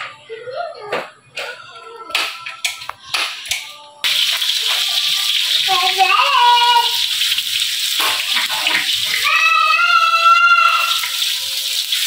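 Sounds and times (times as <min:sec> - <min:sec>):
food sizzling in hot oil: 0:04.0 - 0:12.0.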